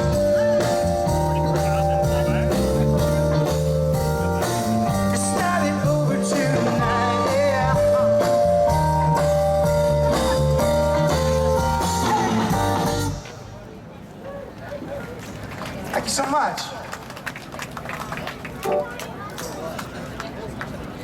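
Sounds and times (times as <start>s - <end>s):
rock band music: 0.0s - 13.3s.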